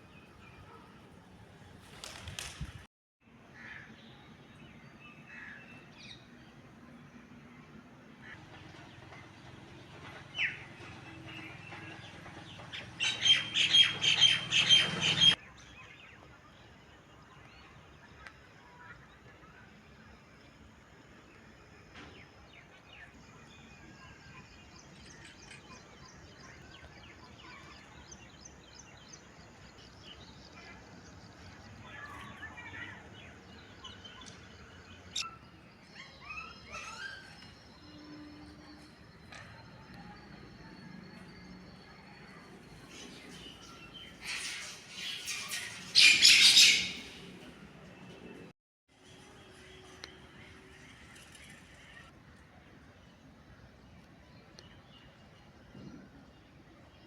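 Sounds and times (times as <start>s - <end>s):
birds chirping and calling: 10.3s - 15.4s, 31.9s - 38.0s, 42.3s - 47.5s
bird squawking: 44.2s - 47.3s.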